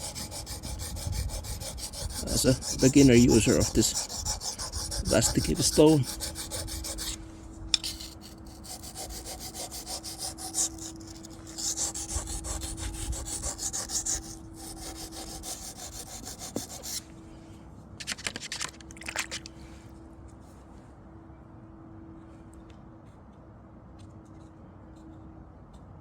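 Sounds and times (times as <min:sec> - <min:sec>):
faint steady hum: 0:00.0 - 0:26.0
knife scraping on sharpening stone: 0:06.9 - 0:08.6.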